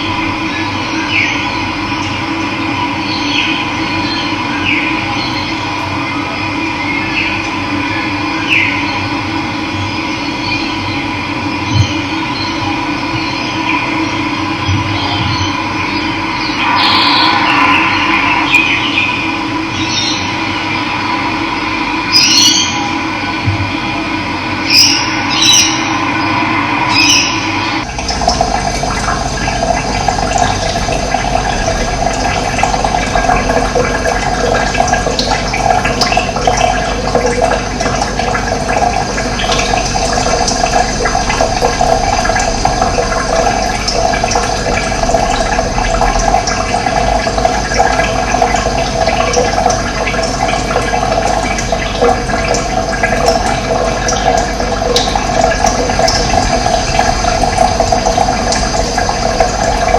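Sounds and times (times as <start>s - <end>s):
running water splashing: 26.9s - 59.9s.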